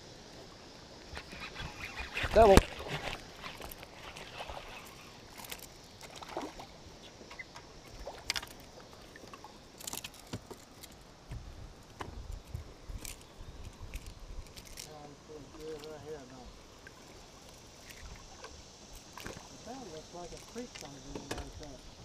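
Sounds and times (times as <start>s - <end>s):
rushing water: 0.0s - 21.9s
boat knocks and clicks: 20.7s - 21.7s.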